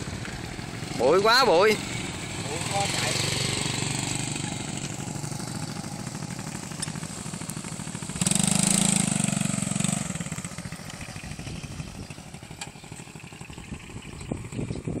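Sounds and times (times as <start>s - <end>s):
motorbike engines running: 0.0s - 15.0s.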